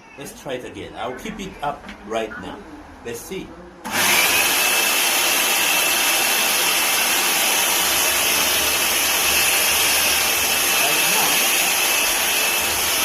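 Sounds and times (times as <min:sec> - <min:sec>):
vacuum cleaner motor whining: 0:03.8 - 0:13.0.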